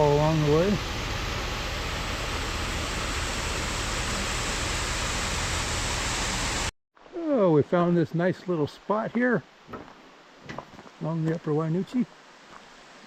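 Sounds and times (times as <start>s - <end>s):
small waterfall rushing: 0.0s - 6.7s, 9.5s - 13.0s.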